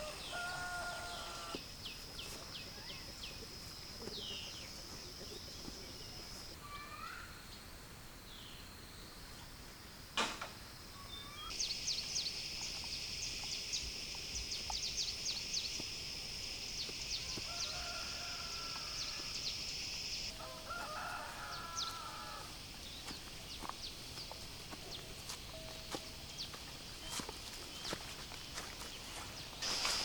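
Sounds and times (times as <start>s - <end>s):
rooster crowing: 0.0s - 1.6s, 17.2s - 19.4s, 20.3s - 22.5s.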